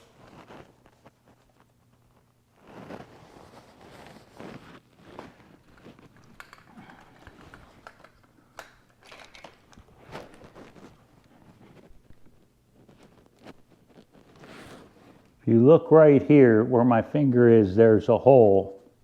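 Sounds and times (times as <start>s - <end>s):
small parts clicking and rustling: 5.2s - 14.1s.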